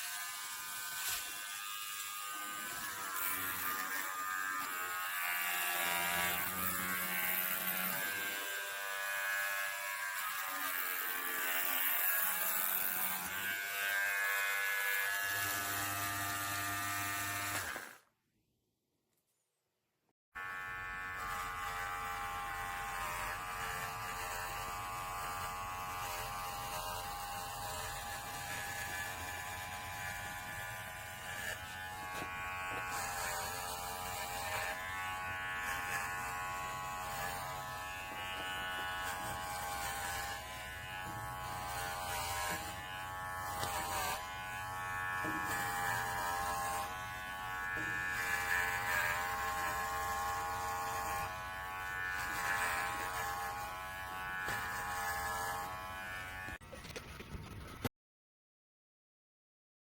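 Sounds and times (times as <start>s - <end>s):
electric clippers buzzing: 0.0s - 18.1s, 20.4s - 56.8s.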